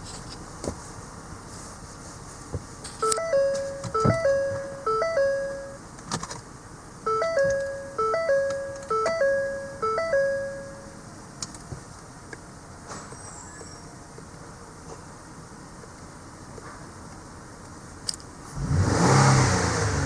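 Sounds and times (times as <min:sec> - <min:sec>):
dashboard warning chime: 0:03.0 - 0:05.9, 0:07.0 - 0:11.1.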